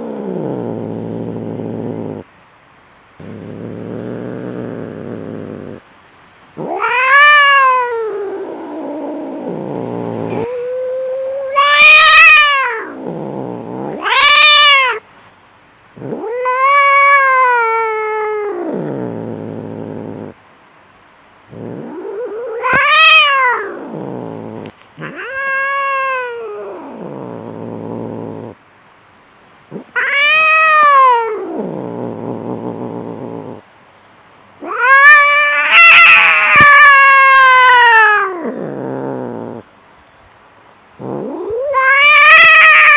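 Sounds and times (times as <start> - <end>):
cat growling: 0.0 - 2.3, 3.2 - 5.8, 6.6 - 15.0, 15.9 - 20.4, 21.5 - 28.6, 29.7 - 33.7, 34.6 - 39.7, 41.0 - 42.9
cats yowling: 6.6 - 15.0, 16.0 - 20.3, 21.6 - 28.6, 29.7 - 32.4, 34.6 - 39.6, 41.0 - 42.9.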